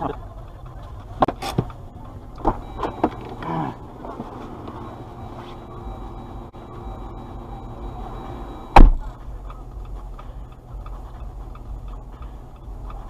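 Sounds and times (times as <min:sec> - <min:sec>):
low engine rumble: 0:00.0 - 0:13.0
hazard light flasher ticking: 0:09.0 - 0:13.0.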